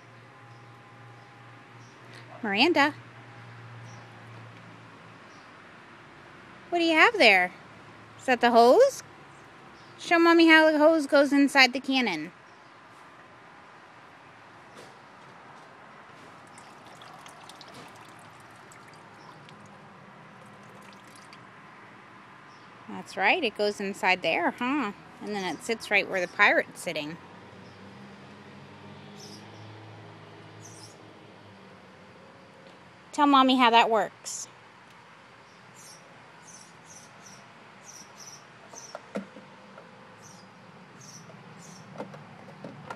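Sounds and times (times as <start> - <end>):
water trickling and splashing: 16.1 - 21.9
small bird chirping: 29.2 - 29.7, 30.6 - 31.0, 35.4 - 39.1, 40.2 - 42.0.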